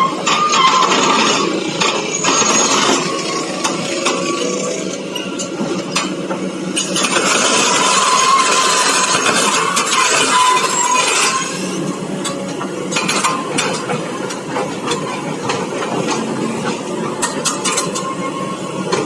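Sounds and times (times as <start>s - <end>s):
high squeal: 0.0s - 5.4s, 7.6s - 12.0s
excavator tracks clanking: 0.0s - 19.0s.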